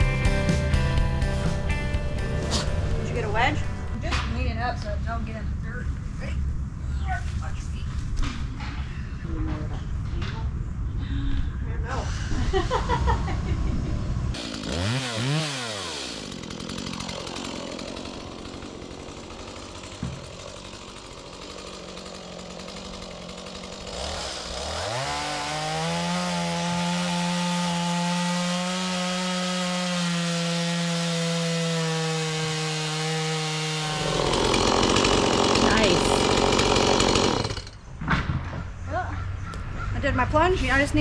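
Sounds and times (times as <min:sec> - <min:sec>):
chainsaw running: 0:00.0 - 0:05.1, 0:14.2 - 0:37.9.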